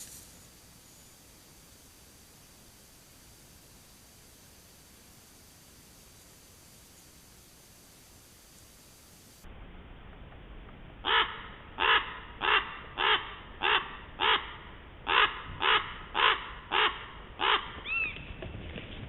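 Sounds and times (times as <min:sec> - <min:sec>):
crow cawing: 0:11.1 - 0:17.8.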